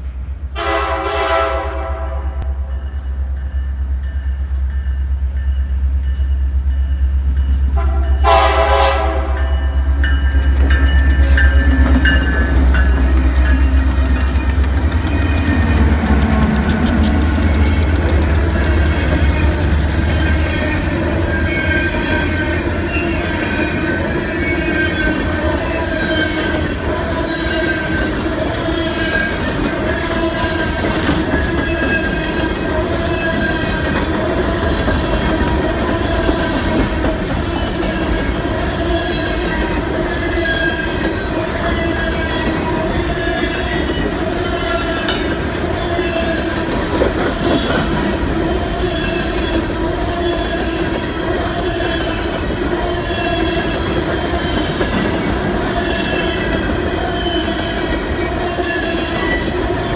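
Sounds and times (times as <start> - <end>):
train car clank: 44.9 - 48.2.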